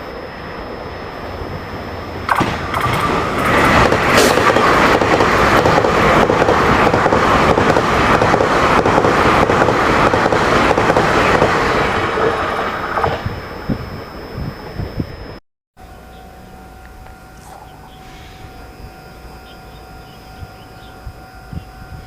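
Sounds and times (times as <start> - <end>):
train passing on tracks: 0.0 - 22.0.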